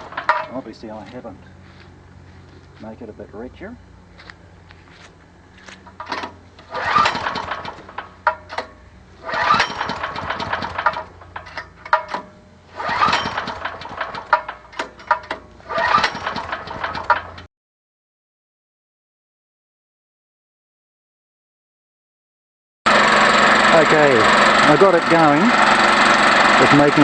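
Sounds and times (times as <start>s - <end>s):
generator engine cranking and sputtering: 0.0s - 3.0s, 5.5s - 17.5s, 22.9s - 27.0s.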